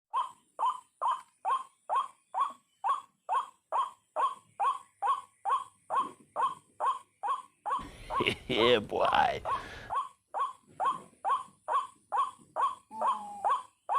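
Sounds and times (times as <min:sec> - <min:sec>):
waterhen calling: 0:10.9 - 0:13.8.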